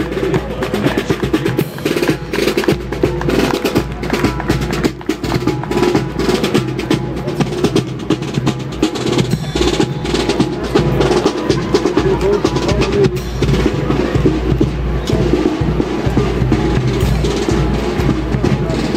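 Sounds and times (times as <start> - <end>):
bass drum beats: 0.0 - 18.9
marching band playing: 0.0 - 18.9
snare drum rolls: 0.0 - 18.9.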